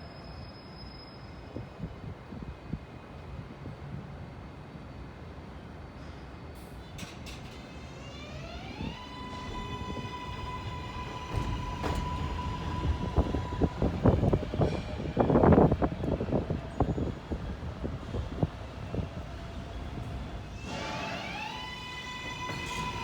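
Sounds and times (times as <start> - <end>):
train motor whine: 7.5 - 23.0
train wheels clacking on rails: 9.3 - 23.0.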